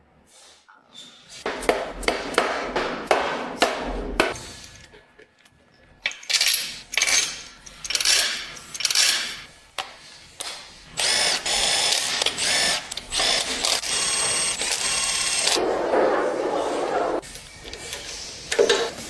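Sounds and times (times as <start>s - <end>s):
power tool whining: 11.0s - 15.6s.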